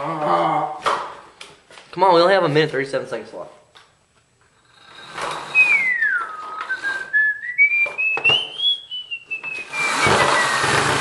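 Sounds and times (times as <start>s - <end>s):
person whistling: 5.5s - 10.6s.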